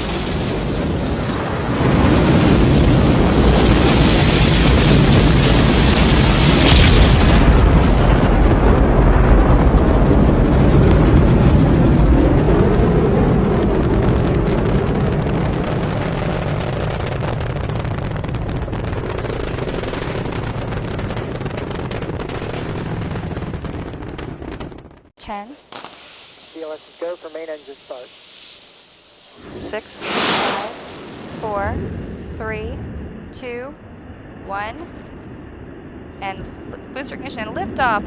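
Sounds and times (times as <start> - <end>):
rocket launch roar: 0.0 - 24.8, 25.6 - 33.3.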